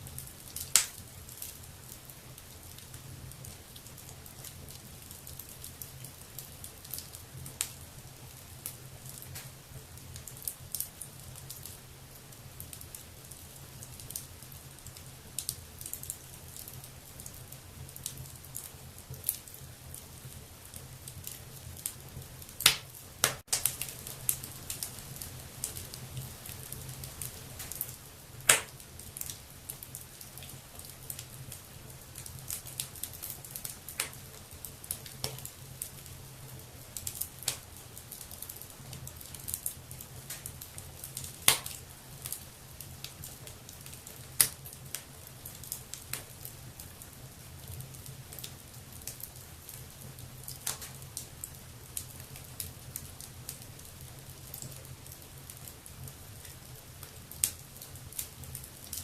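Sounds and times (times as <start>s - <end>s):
wood fire crackling and popping: 0.0s - 59.0s
fire hissing: 0.2s - 1.6s, 22.2s - 30.4s.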